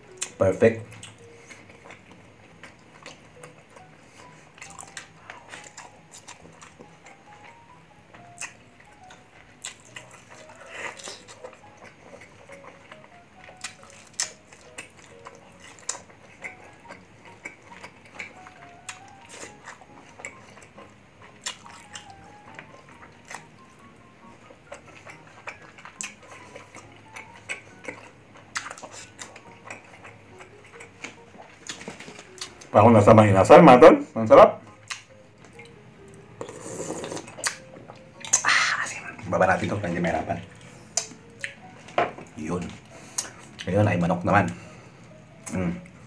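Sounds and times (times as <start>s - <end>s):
person chewing: 0.0s - 32.7s, 34.7s - 39.2s, 40.4s - 41.9s, 42.7s - 43.7s
faint background music: 0.0s - 46.0s
wet mouth clicks and smacks: 34.9s - 35.7s, 38.2s - 38.8s.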